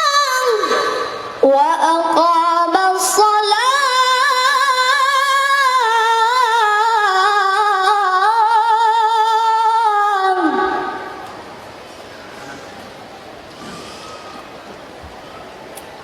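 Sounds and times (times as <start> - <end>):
high voice melodic recitation: 0.0 - 11.1.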